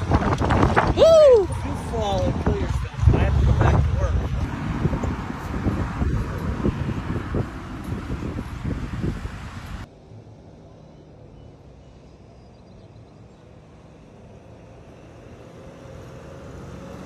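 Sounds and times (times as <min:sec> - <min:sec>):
wind buffeting microphone: 0:00.0 - 0:09.9
low steady rumble: 0:00.0 - 0:10.4.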